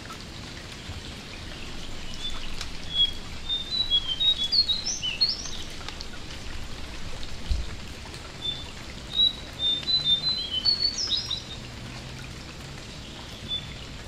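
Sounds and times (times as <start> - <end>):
rain dripping: 0.0 - 14.0
bird singing whistled notes: 2.0 - 5.7, 8.4 - 11.6, 13.4 - 13.8.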